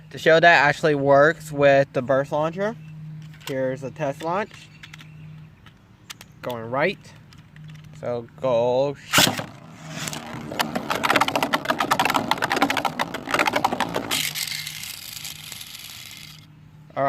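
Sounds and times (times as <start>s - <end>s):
spinning top rattling clicks: 9.2s - 16.5s
spinning top whirring hiss: 9.2s - 16.5s.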